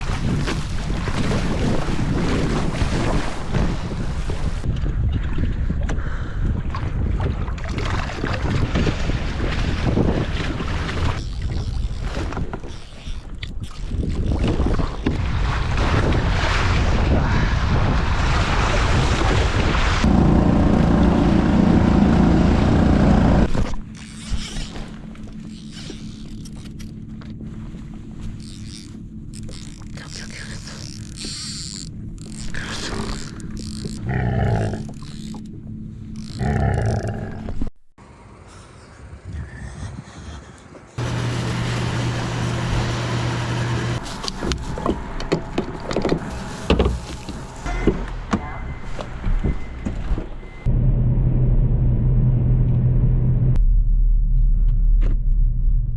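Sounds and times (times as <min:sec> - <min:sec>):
rushing water: 0:00.0 - 0:04.7, 0:07.8 - 0:11.2
wind buffeting microphone: 0:00.0 - 0:12.8, 0:13.4 - 0:23.4, 0:38.0 - 0:47.6
vehicle hum: 0:20.0 - 0:23.6, 0:38.0 - 0:55.9
motor drone: 0:20.0 - 0:36.7, 0:38.0 - 0:53.6.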